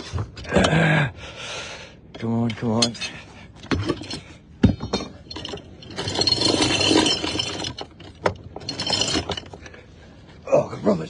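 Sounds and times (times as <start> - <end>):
anchor chain rattling: 2.8 - 9.8.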